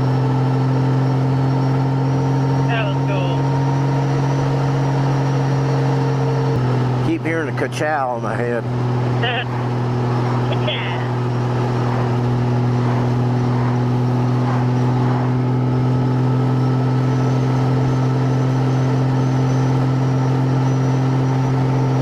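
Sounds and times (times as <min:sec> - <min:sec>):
motorcycle engine cruising: 0:00.0 - 0:22.0
road noise: 0:00.0 - 0:22.0.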